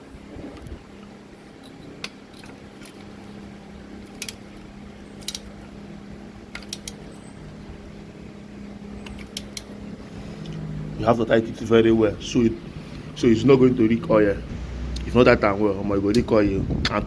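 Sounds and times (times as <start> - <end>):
steady low hum: 0.0 - 17.0
spanner clicking on metal: 1.6 - 3.2, 4.0 - 5.7, 6.5 - 7.3, 9.0 - 9.8, 15.9 - 17.0.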